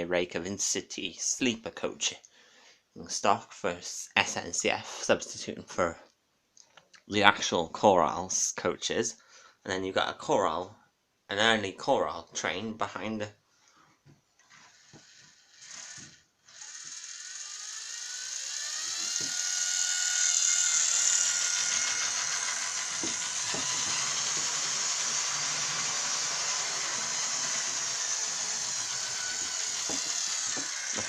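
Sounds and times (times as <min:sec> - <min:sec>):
model train motor whining: 0:14.5 - 0:31.0.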